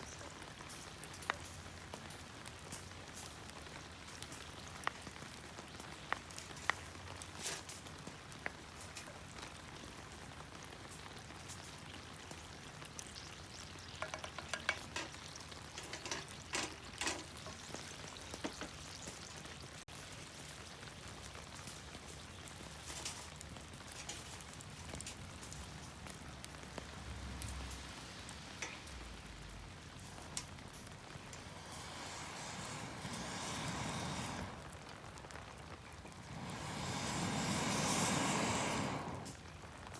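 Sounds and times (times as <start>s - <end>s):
food sizzling in a pan: 0.0s - 39.9s
utensil clinking and scraping: 14.0s - 17.6s.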